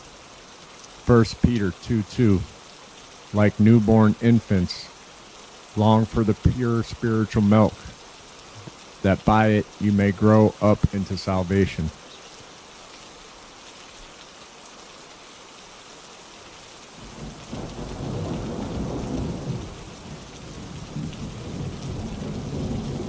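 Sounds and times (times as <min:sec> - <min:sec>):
rainfall hiss: 0:00.0 - 0:23.0
rolling thunder rumble: 0:17.1 - 0:23.0.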